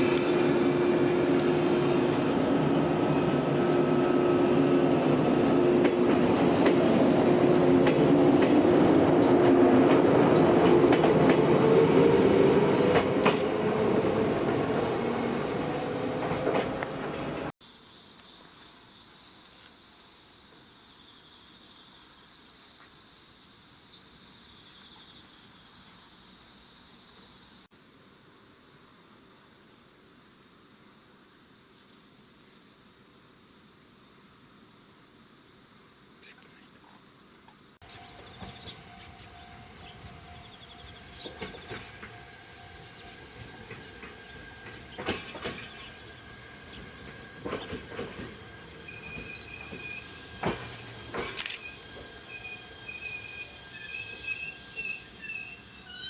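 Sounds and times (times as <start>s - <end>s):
electric train rumbling on rails: 0.0s - 17.6s, 37.8s - 56.0s
insects chirping in pulsing trills: 17.6s - 32.6s, 37.0s - 56.0s
faint outdoor hiss: 17.6s - 47.4s
sharp wheel-and-rail noises: 41.2s - 56.0s.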